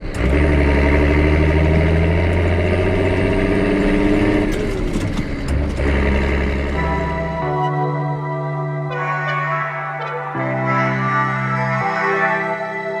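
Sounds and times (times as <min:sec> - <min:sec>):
tractor engine running: 0:00.0 - 0:08.9.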